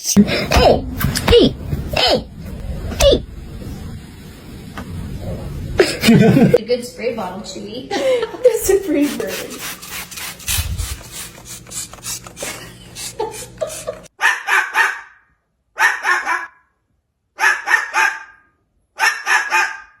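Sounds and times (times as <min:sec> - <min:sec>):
dog barking: 0:14.2 - 0:16.7, 0:17.4 - 0:20.0.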